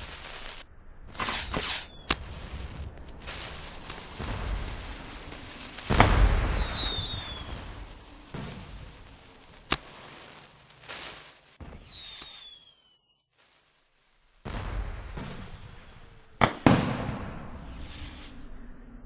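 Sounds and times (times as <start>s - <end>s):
crackling and rumbling: 0.0s - 12.3s, 13.3s - 19.0s
sharp firework crack: 0.0s - 13.1s, 14.4s - 18.6s
falling firework whistles: 0.0s - 13.5s, 15.2s - 18.6s
firework bang: 1.1s - 9.8s, 14.4s - 18.6s.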